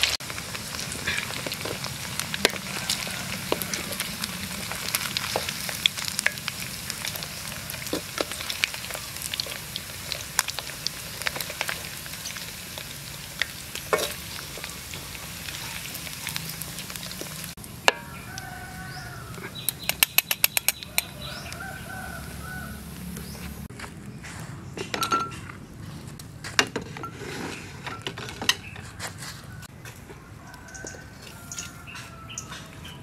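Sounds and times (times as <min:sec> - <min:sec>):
meat sizzling in hot oil: 0:00.0 - 0:23.1
rooster crowing: 0:02.3 - 0:05.2, 0:06.8 - 0:08.1, 0:17.9 - 0:19.6, 0:20.9 - 0:23.2, 0:28.8 - 0:33.0.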